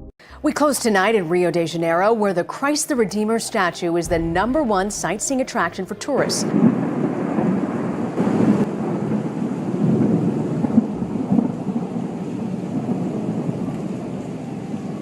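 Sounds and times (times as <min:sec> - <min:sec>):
low rumbling: 0:04.0 - 0:08.6.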